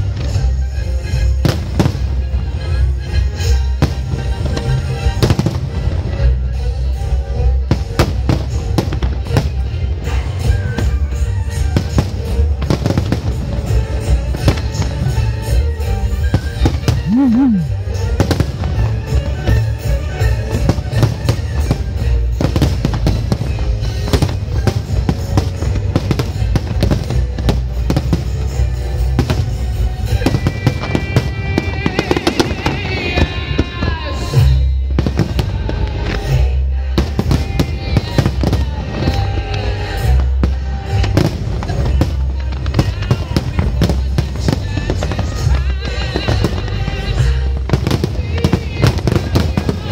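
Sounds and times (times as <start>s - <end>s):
fireworks bursting and crackling: 0.0s - 49.9s
loud music playing: 0.0s - 49.9s.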